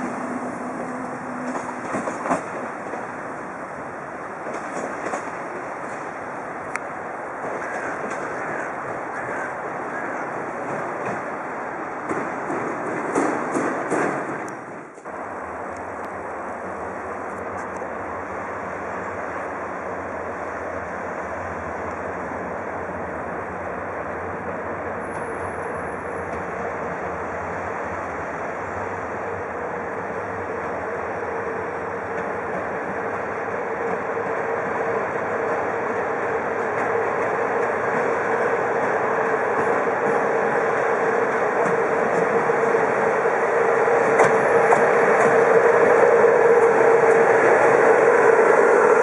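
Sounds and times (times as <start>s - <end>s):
train rolling rumble: 0.0s - 49.0s.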